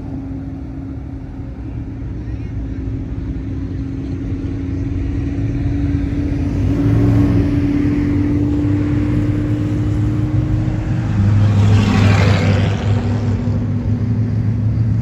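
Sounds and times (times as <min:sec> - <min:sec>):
car engines cruising past: 0:00.0 - 0:15.0
car exhaust passing close: 0:04.9 - 0:15.0.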